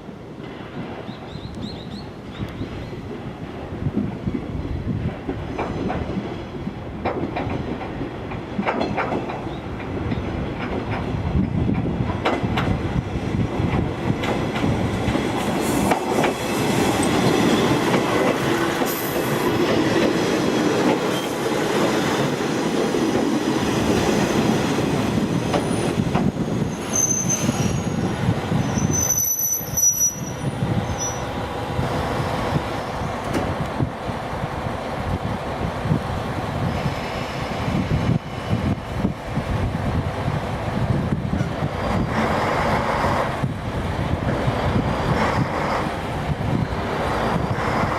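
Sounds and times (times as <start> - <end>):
diesel railcar moving: 0.0 - 47.9
high-pitched wheel squeal: 26.6 - 31.4.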